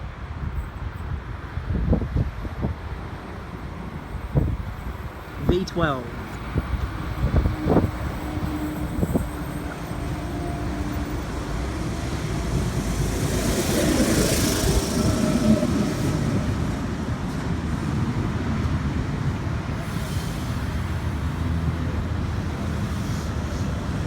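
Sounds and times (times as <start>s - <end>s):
train wheels rumbling on rail: 6.1s - 24.0s
hiss: 22.8s - 24.0s.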